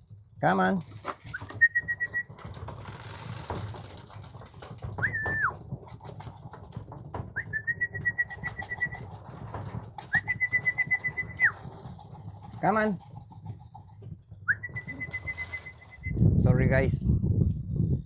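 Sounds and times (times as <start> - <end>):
trilled whistles: 1.2 - 2.4, 5.0 - 5.5, 7.4 - 9.2, 10.0 - 11.8, 14.4 - 16.3
pigeons cooing: 4.6 - 16.2.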